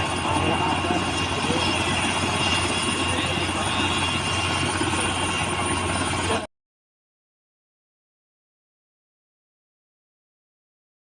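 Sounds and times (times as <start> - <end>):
helicopter rotor chop: 0.0 - 6.5
turbine whine: 0.0 - 6.5.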